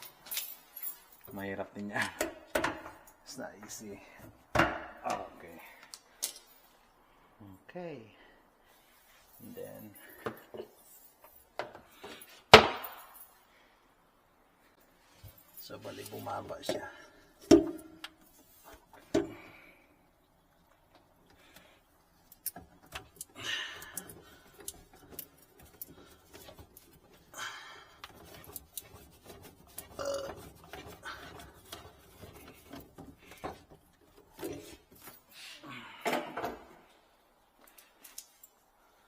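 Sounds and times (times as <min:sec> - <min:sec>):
plumbing parts clicking and knocking: 0:01.2 - 0:06.5, 0:16.0 - 0:19.5, 0:20.4 - 0:35.2
scraping and rubbing: 0:28.0 - 0:34.9.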